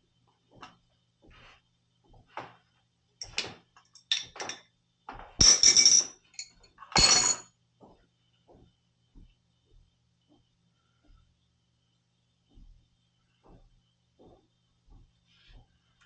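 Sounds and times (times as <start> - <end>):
metal tools clinking and scraping: 3.2 - 4.6, 5.4 - 7.5.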